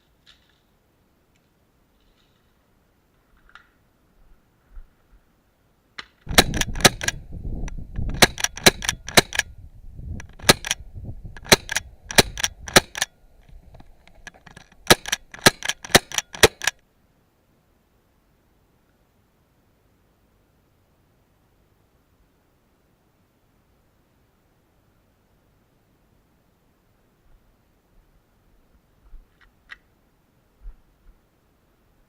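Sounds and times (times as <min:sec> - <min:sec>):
gas pistol shots: 0:06.3 - 0:07.2, 0:08.1 - 0:09.5, 0:10.3 - 0:10.8, 0:11.4 - 0:13.1, 0:14.8 - 0:16.8.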